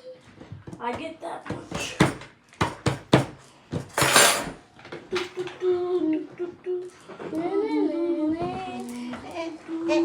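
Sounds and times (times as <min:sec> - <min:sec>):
dishes and cutlery clinking: 0:03.2 - 0:04.6
child humming a tune: 0:05.4 - 0:10.0.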